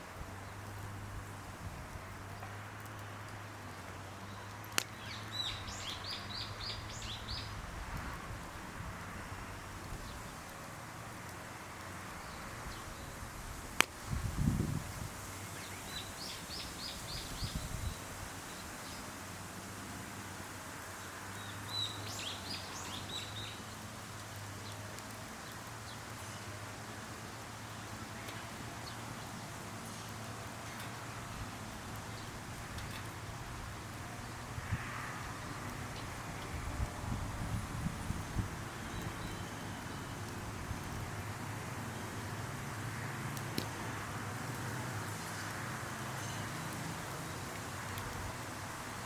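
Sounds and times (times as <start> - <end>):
bird chirping: 4.2 - 7.6, 21.4 - 23.6, 38.8 - 40.1.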